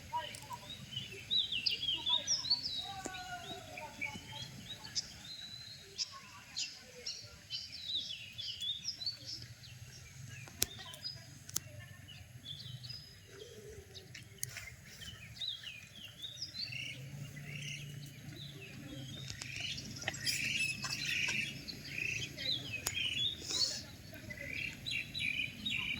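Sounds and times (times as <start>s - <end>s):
birds chirping: 0.0s - 25.9s.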